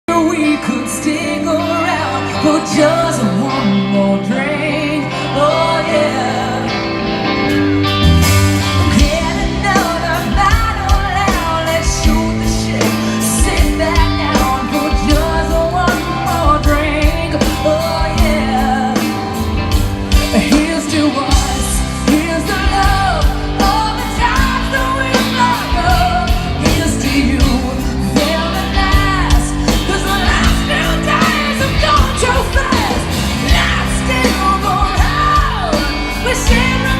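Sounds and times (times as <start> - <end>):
lead singer: 0.1 - 36.9
live band playing: 0.1 - 36.9
drums and bass beat: 7.6 - 36.9.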